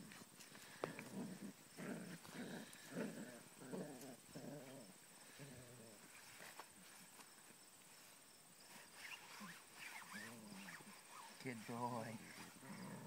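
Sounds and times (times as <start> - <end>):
dog growly moans: 0.8 - 6.0, 12.4 - 13.0.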